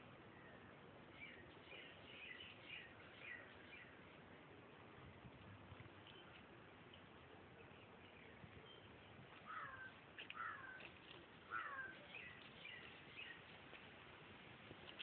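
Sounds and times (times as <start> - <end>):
faint background hiss: 0.0 - 15.0
bird calls and chirps: 0.3 - 4.0, 6.0 - 13.6.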